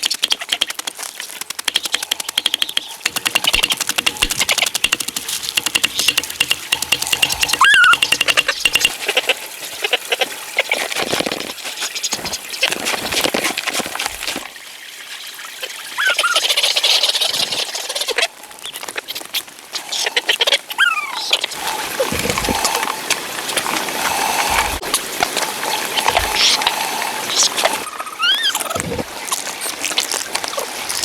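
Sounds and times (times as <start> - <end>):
ducks calling: 5.6 - 10.9, 16.0 - 29.0.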